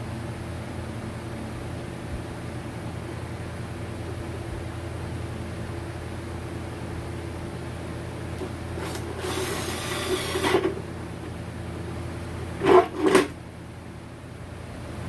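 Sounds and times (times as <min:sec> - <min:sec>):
steady hum: 0:00.0 - 0:15.0
tool scraping: 0:08.4 - 0:10.8, 0:12.5 - 0:13.4.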